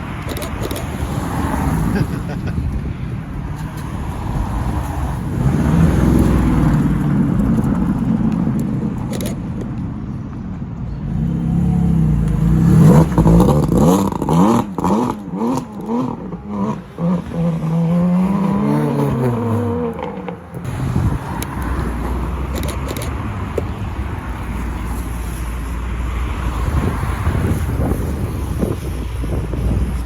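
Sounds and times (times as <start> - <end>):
car engine revving: 11.0 - 23.6.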